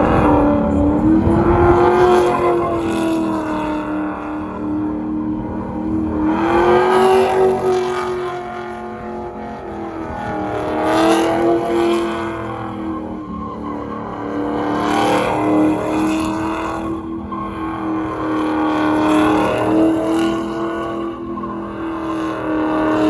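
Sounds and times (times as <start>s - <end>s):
vehicle engine at high revs: 0.0s - 23.0s.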